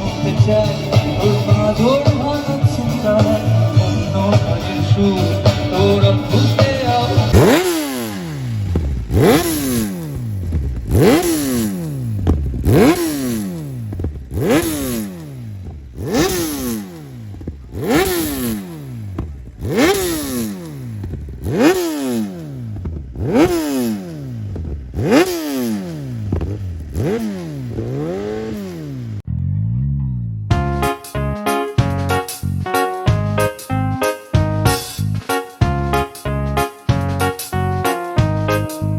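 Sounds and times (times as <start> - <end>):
motorcycle engine revving: 0.0 - 30.7.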